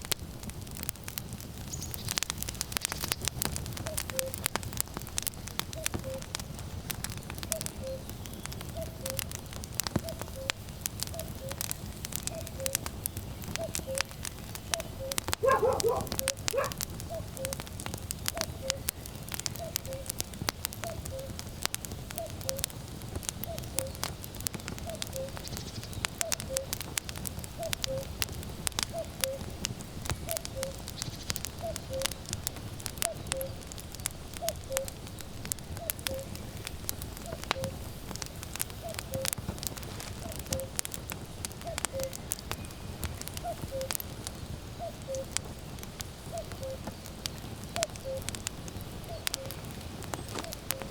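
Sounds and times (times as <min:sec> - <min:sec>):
firewood crackling and popping: 0:00.0 - 0:50.9
cuckoo calling: 0:03.8 - 0:04.5, 0:05.7 - 0:06.4, 0:07.5 - 0:09.3, 0:10.0 - 0:17.6, 0:18.3 - 0:18.9, 0:19.5 - 0:20.1, 0:20.8 - 0:21.4, 0:22.2 - 0:22.7, 0:23.4 - 0:24.1, 0:24.8 - 0:26.8, 0:27.6 - 0:28.2, 0:28.9 - 0:29.5, 0:30.3 - 0:32.3, 0:33.1 - 0:33.6, 0:34.4 - 0:35.0, 0:35.8 - 0:36.4, 0:37.2 - 0:37.8, 0:38.8 - 0:39.4, 0:40.2 - 0:40.8, 0:41.6 - 0:42.8, 0:43.4 - 0:44.0, 0:44.8 - 0:45.4, 0:46.3 - 0:47.0, 0:47.8 - 0:48.3, 0:49.1 - 0:50.9.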